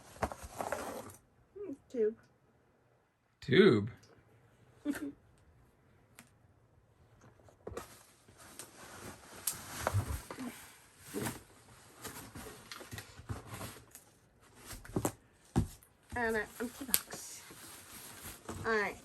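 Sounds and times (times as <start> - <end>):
packaging rustling and crinkling: 0.0 - 1.2, 7.7 - 19.0.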